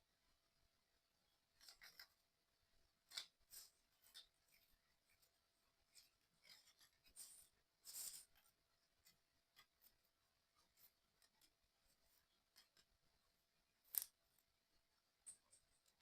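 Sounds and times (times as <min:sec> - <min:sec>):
small plastic parts clicking: 0:13.8 - 0:14.5.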